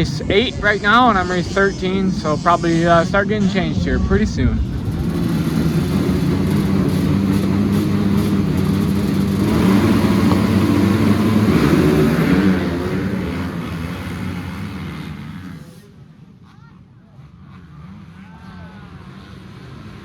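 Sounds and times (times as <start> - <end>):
dirt bike engines revving: 0.0 - 20.0.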